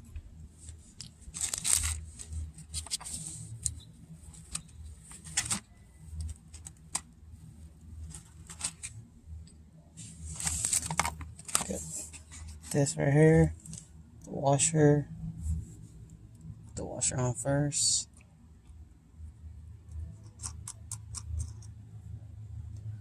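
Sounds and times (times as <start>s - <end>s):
low steady hum: 0.0s - 23.0s
rustling scraping: 10.0s - 12.9s.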